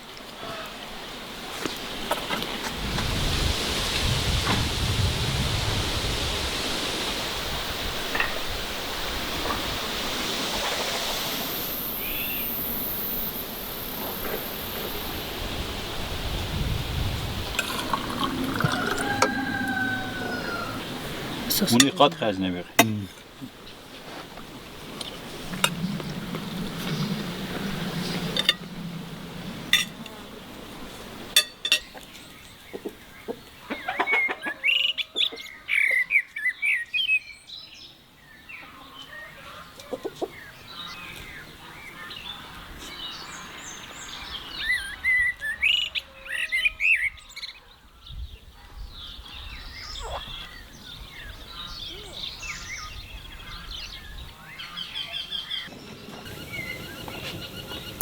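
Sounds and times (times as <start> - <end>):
songbirds chirping and singing: 17.6 - 23.8, 31.4 - 58.0.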